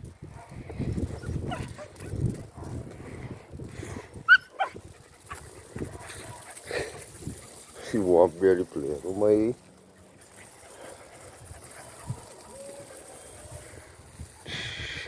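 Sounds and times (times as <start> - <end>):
dogs scuffling: 3.7 - 14.4
dog yipping: 4.3 - 6.6.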